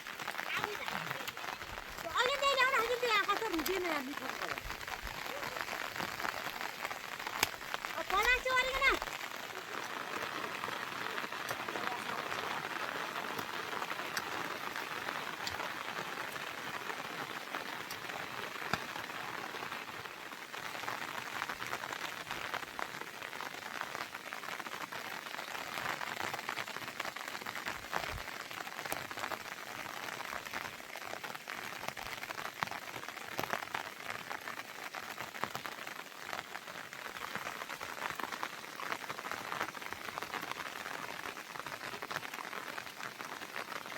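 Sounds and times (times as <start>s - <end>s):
heavy rain hissing: 0.0s - 43.9s
raindrops ticking on surfaces: 0.0s - 43.9s.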